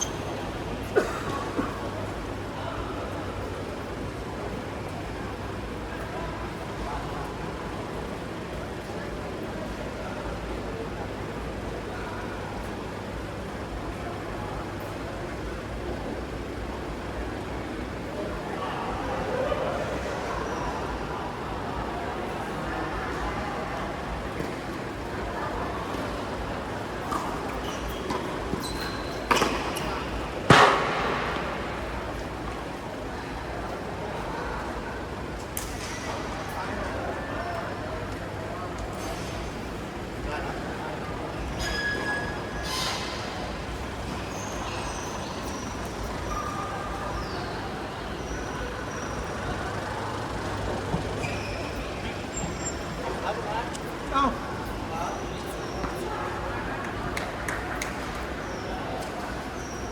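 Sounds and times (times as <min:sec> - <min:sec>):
sports shoes squeaking on court: 0:00.0 - 0:00.6, 0:27.1 - 0:30.9, 0:48.3 - 0:53.9
faint voices: 0:00.0 - 0:59.9.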